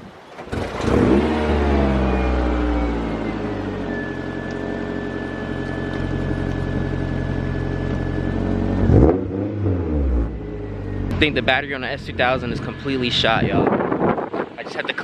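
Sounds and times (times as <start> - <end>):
engine rev blip: 0.5 - 13.2
car engine running: 0.5 - 13.7.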